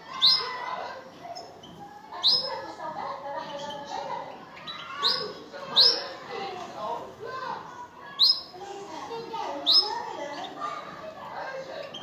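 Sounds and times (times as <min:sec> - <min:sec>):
birds twittering: 0:00.0 - 0:06.8, 0:07.8 - 0:12.0.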